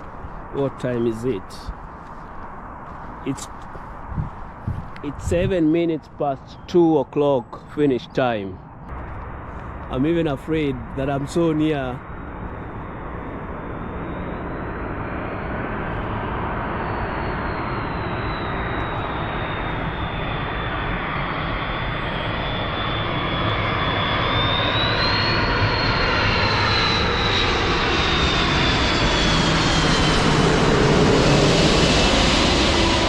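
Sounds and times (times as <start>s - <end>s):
airliner engine on approach: 0.0s - 33.0s
high engine whine: 8.6s - 33.0s.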